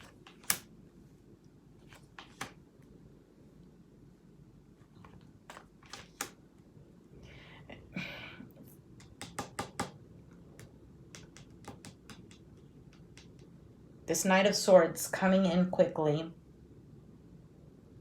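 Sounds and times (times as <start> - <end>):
cards clicking and tapping: 0.0 - 0.7, 1.8 - 2.6, 5.0 - 6.4, 9.0 - 13.5.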